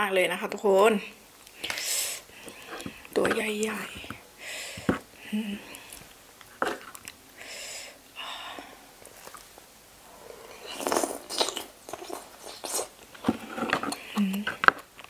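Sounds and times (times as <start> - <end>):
slurping and chewing: 9.0 - 15.0.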